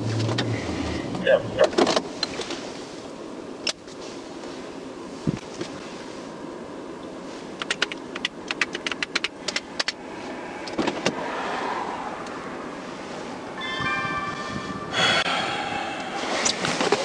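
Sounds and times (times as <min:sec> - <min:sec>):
outdoor noise rushing: 0:00.0 - 0:17.0.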